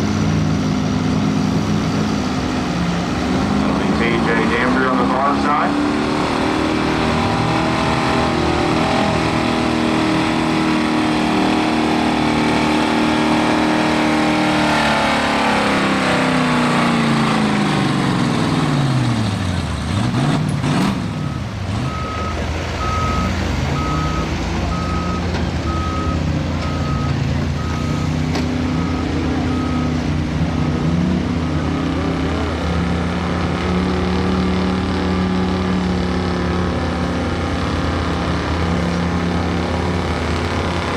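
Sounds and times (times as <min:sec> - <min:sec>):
engine revving: 0:00.0 - 0:40.9
truck engines running: 0:00.0 - 0:40.9
backup beeper: 0:21.0 - 0:30.0.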